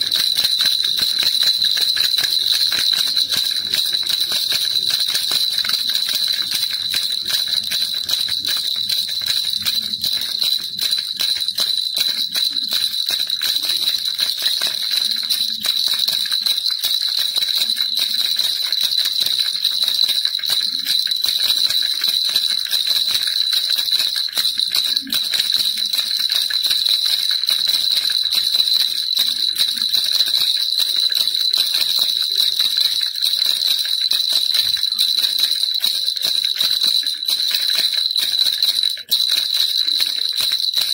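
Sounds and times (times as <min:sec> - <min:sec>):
baby rattle jingling: 0:00.0 - 0:40.9
steady high ringing tone: 0:00.0 - 0:40.9.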